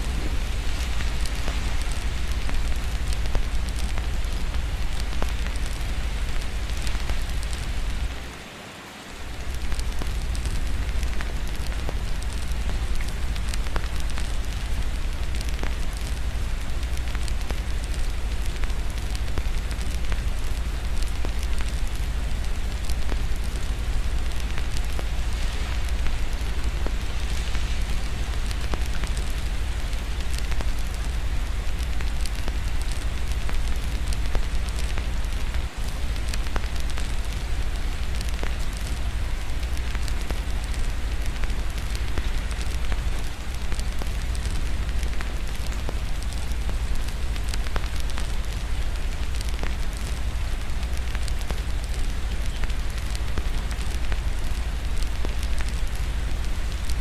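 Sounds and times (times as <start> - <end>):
low rumble: 0.0 - 8.3
wood fire crackling: 0.0 - 8.4, 9.1 - 57.0
steady rain: 0.0 - 57.0.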